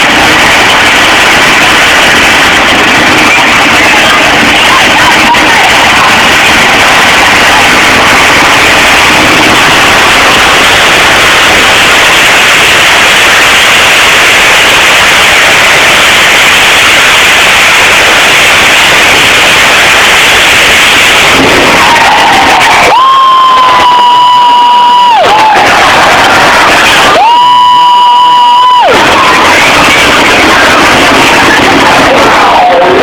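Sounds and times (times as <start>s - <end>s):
distorted truck engine roar: 0.0s - 23.7s, 24.5s - 33.0s.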